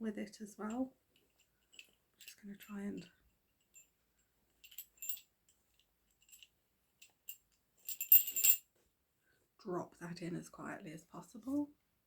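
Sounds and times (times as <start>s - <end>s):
small metal bells jingling: 0.6s - 3.1s, 4.6s - 5.3s, 6.2s - 8.6s.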